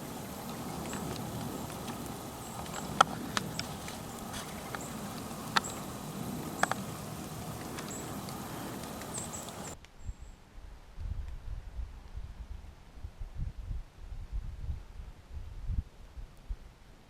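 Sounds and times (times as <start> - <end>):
steady hiss: 0.0 - 9.8
water dripping from trees: 0.0 - 9.8.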